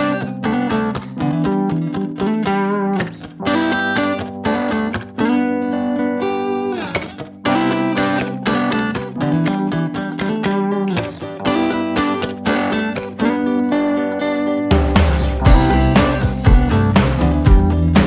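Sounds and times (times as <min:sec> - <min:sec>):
plucked guitar music: 0:00.0 - 0:18.0.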